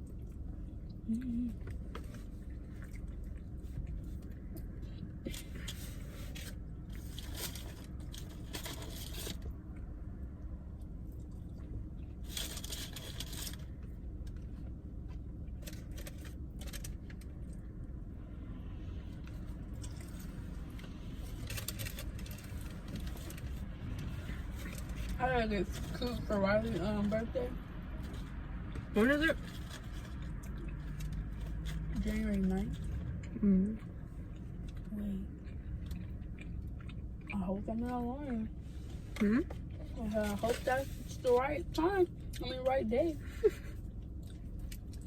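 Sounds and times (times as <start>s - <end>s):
crunching and chewing food: 0.0s - 42.5s, 43.2s - 45.0s
steady low hum: 0.0s - 45.0s
scraping and rustling: 38.7s - 41.5s.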